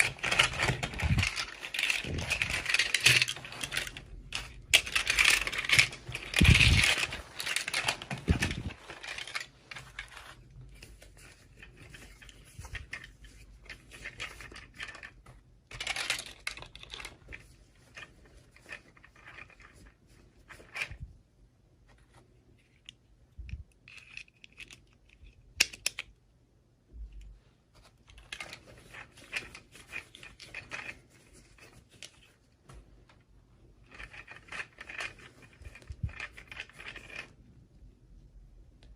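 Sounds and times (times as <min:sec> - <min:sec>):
packaging rustling and tearing: 0:00.0 - 0:15.2
plastic pieces clicking: 0:00.0 - 0:19.8, 0:22.7 - 0:26.2, 0:33.8 - 0:37.4.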